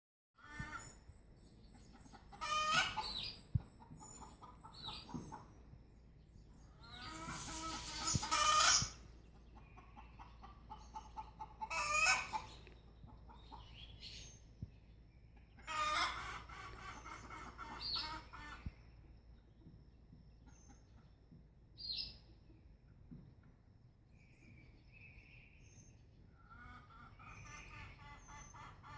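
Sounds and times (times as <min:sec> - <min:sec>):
chickens clucking: 0:00.4 - 0:01.0, 0:01.6 - 0:05.8, 0:06.4 - 0:21.5, 0:26.4 - 0:28.9.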